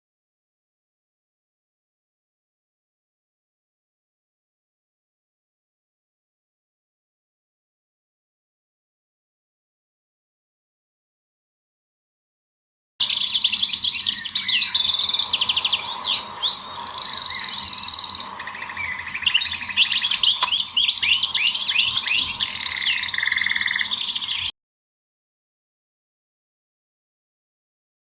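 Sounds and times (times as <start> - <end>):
small birds chirping and singing: 13.0 - 24.5
sharp click: 20.2 - 20.7.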